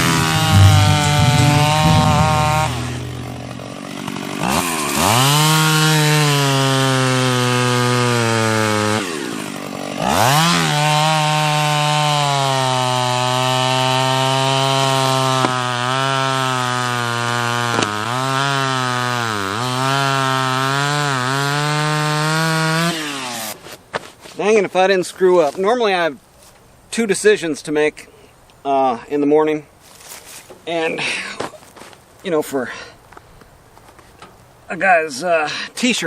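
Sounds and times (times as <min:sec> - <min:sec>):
chainsaw running at high revs: 0:03.8 - 0:23.6.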